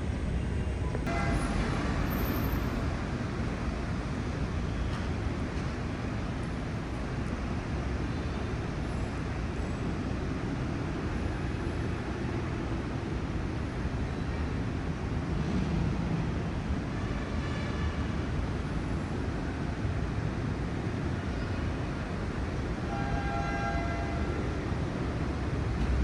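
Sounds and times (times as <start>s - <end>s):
city road traffic rumble: 0.0s - 26.0s.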